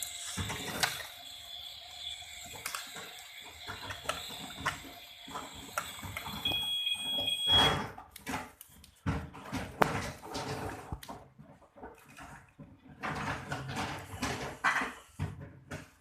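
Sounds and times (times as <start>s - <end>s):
high electronic beep: 6.2s - 7.8s.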